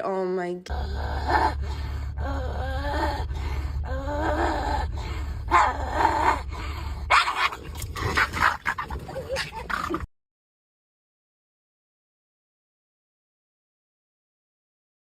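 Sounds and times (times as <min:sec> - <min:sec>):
low hum: 0:00.1 - 0:10.1
dog whining: 0:04.0 - 0:10.1
dog yelping: 0:05.5 - 0:06.4, 0:07.1 - 0:10.0.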